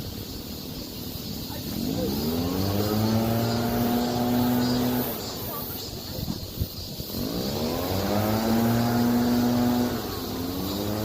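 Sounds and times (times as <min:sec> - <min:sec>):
engine rising in pitch: 0:01.8 - 0:05.5, 0:07.0 - 0:11.0.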